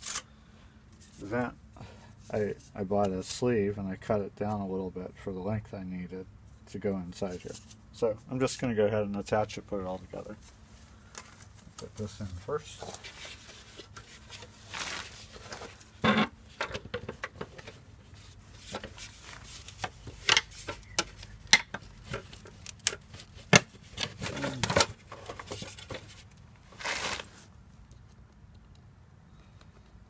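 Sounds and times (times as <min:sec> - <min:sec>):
dryer vent parts clicking and knocking: 0:15.6 - 0:26.4.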